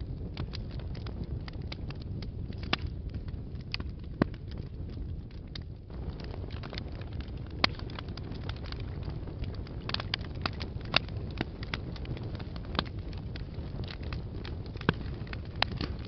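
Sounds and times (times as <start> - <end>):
fireplace fire crackling and popping: 0.0 - 16.0.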